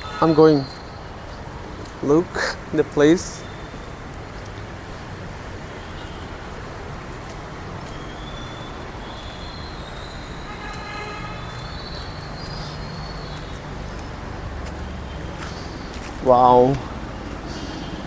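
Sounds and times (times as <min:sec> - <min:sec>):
vehicle horn: 0:00.0 - 0:00.6, 0:10.4 - 0:11.7
road traffic hum: 0:00.0 - 0:18.0.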